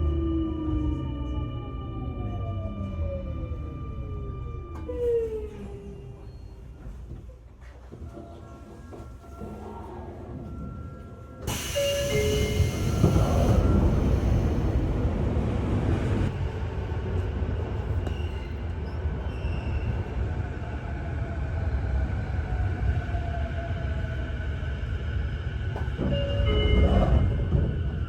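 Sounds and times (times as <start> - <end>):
train rushing rumble: 9.9 - 19.2.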